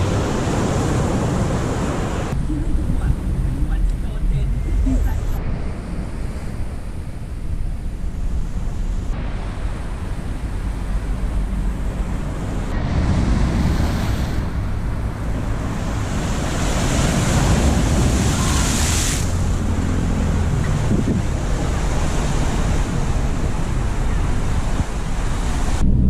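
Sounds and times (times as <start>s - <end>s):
sea waves washing on shore: 0.0s - 7.3s, 8.3s - 25.8s
wind buffeting microphone: 0.0s - 26.0s.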